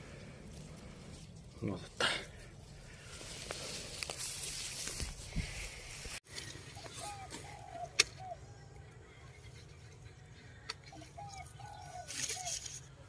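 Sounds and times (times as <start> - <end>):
dove cooing: 6.8 - 8.7, 10.9 - 12.7.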